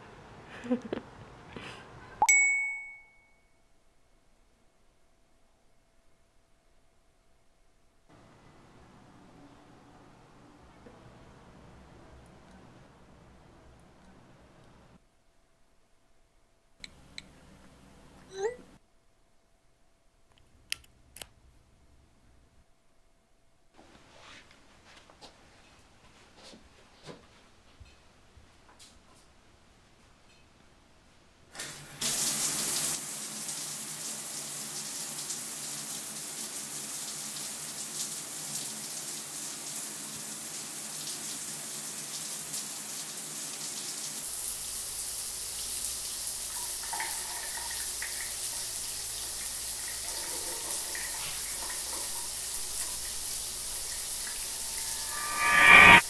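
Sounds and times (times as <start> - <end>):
water running: 31.7 - 55.8
short loud rising sound: 54.4 - 56.0.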